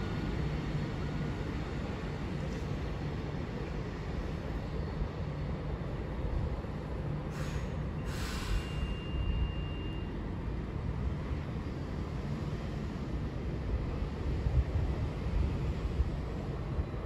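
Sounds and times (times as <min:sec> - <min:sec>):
low rumble of trains: 0:00.0 - 0:17.0
short hiss: 0:07.3 - 0:08.8
faint high whine: 0:08.6 - 0:10.2.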